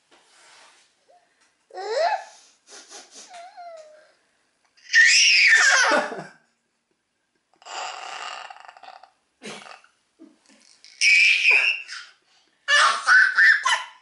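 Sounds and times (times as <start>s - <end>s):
baby squealing: 4.8s - 6.0s, 11.0s - 14.0s.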